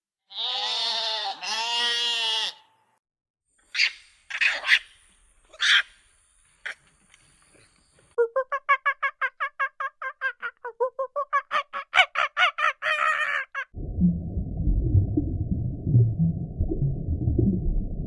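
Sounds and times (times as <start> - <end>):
goat bleating: 0.3 - 2.8
short harsh goat calls: 0.3 - 2.8.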